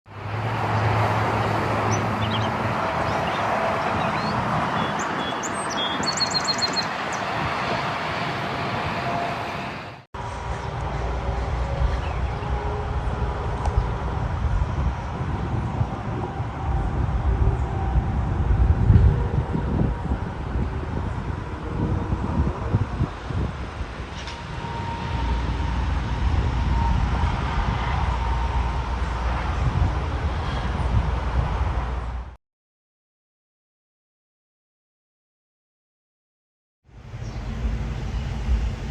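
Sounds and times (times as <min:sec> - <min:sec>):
outdoor traffic noise: 0:00.1 - 0:32.4, 0:36.8 - 0:38.9
bird chirping: 0:01.4 - 0:07.3.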